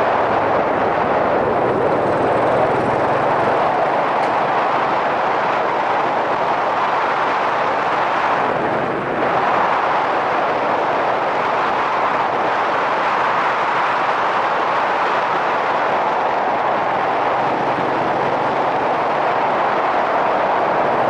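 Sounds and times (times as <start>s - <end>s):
motorcycle riding with wind rush: 0.0s - 21.0s.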